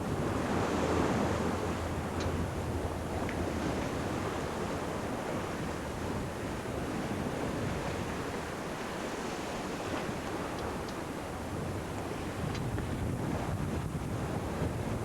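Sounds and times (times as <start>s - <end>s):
wind and seawater rushing: 0.0s - 15.0s
wind buffeting microphone: 0.0s - 15.0s
faint high ticks: 2.2s - 2.4s, 10.5s - 11.0s.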